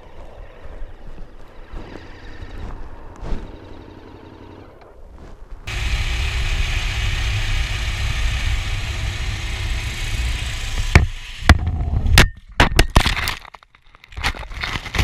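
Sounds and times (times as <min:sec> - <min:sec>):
wind noise: 0:00.0 - 0:03.7, 0:04.9 - 0:12.6
dirt bike engine running: 0:02.6 - 0:05.0, 0:05.7 - 0:12.2.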